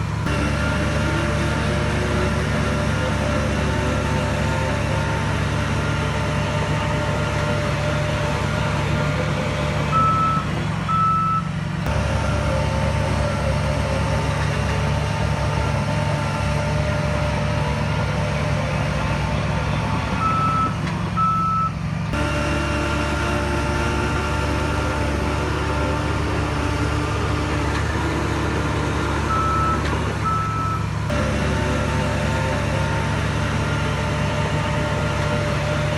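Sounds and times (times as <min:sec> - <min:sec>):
diesel earthmoving machine running: 0:00.0 - 0:35.9
reversing alarm beeps: 0:09.9 - 0:11.5, 0:20.2 - 0:21.7, 0:29.3 - 0:30.8.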